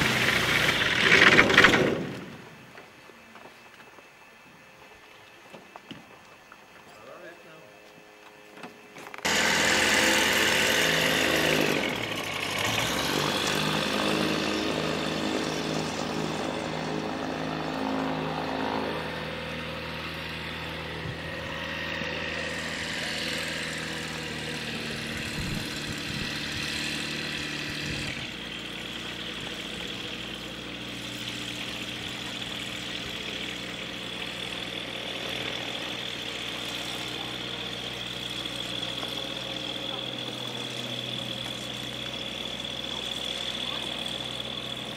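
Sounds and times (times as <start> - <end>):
light aircraft piston engine: 0.0 - 44.9.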